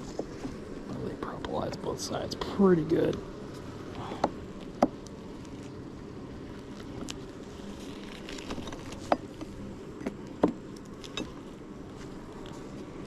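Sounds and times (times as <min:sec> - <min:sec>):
honeybees buzzing: 0:00.0 - 0:13.0
hive tool prying frames clicks: 0:04.2 - 0:05.2, 0:08.0 - 0:11.4.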